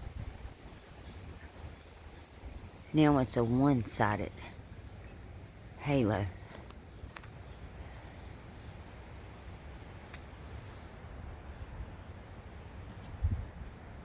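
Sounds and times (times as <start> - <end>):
low rumble on microphone: 0.0 - 3.0, 10.5 - 14.0.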